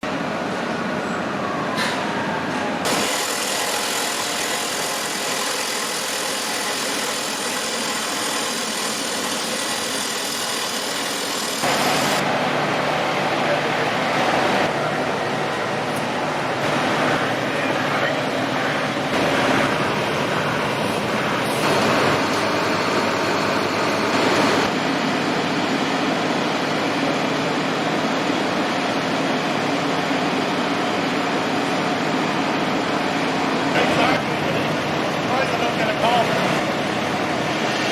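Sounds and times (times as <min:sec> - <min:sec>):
truck engine and hydraulics: 0:00.0 - 0:37.9.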